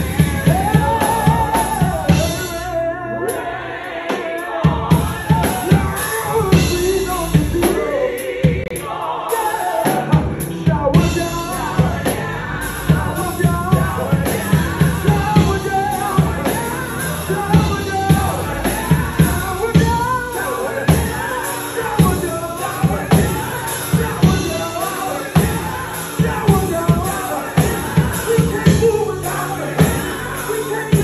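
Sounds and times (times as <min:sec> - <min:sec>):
band with drums and bass: 0:00.0 - 0:31.0
person singing: 0:00.0 - 0:31.0.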